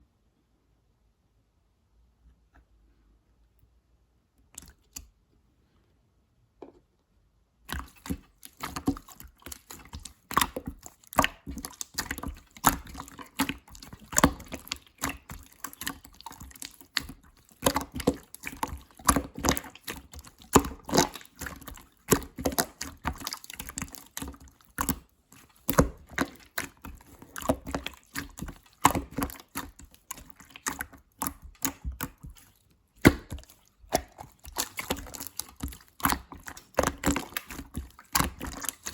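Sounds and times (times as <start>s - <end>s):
slime squishing wet clicks and pops: 25.6s - 38.9s.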